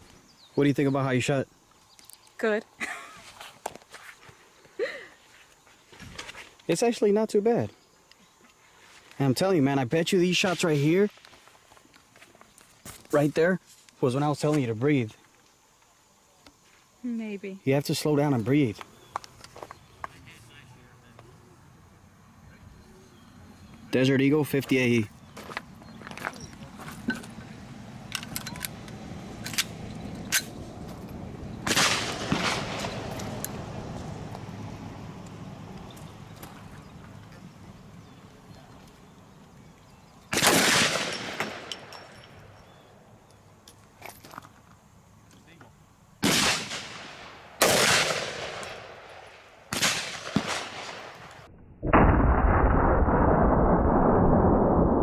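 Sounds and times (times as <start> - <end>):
metallic clicks of gun handling: 28.1 - 30.5
pistol shots: 31.6 - 33.1, 40.3 - 41.7, 46.2 - 48.9, 49.7 - 51.1
rustling burst: 31.6 - 33.4, 40.3 - 41.7.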